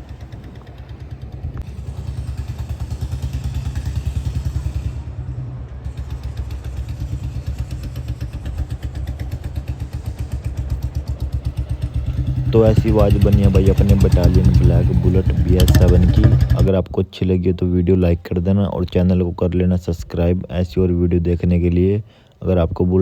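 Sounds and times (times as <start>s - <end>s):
motorcycle engine running: 0.0s - 16.7s.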